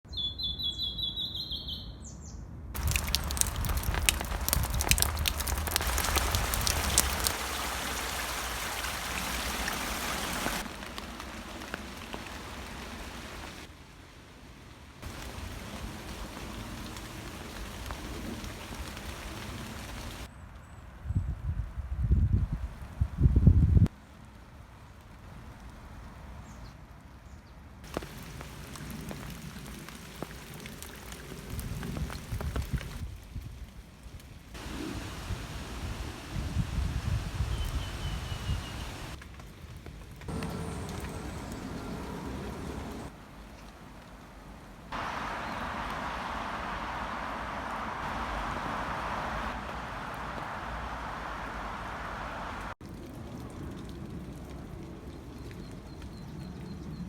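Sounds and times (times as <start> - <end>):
raindrops ticking: 2.8 - 13.7, 15.0 - 20.3, 27.9 - 33.0, 37.6 - 44.2, 45.0 - 56.7
rain falling in a forest: 2.8 - 20.8, 23.8 - 57.0.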